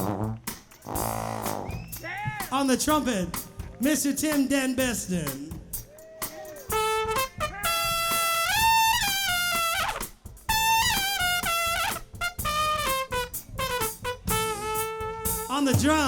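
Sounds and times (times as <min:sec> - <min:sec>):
trumpet solo: 0:00.0 - 0:02.4, 0:06.5 - 0:16.0.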